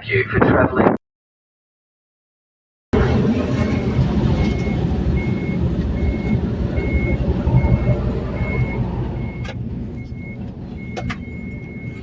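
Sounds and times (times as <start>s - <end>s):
low rumble of engines: 3.0s - 12.0s.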